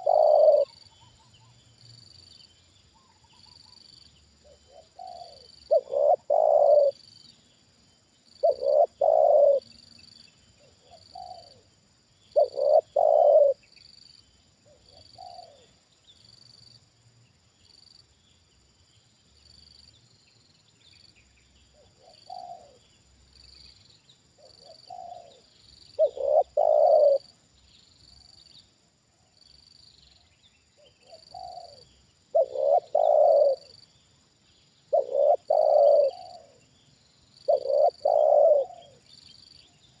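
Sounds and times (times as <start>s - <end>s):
dove cooing: 0.0s - 1.2s, 4.4s - 7.0s, 8.4s - 9.8s, 10.6s - 11.7s, 12.3s - 13.6s, 14.6s - 15.7s, 21.8s - 22.8s, 24.4s - 27.3s, 30.8s - 33.8s, 34.9s - 36.6s, 37.4s - 39.8s.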